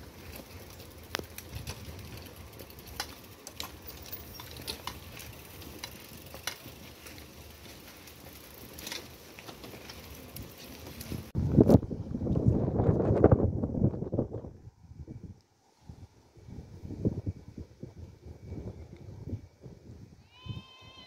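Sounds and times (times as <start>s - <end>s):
wagon clicks on rails: 0.0s - 11.3s.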